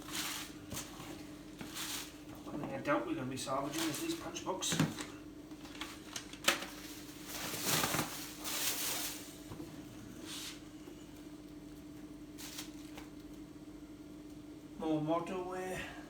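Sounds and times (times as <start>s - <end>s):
rustling of stock from box: 0.0s - 2.3s, 5.6s - 9.5s, 12.4s - 13.1s.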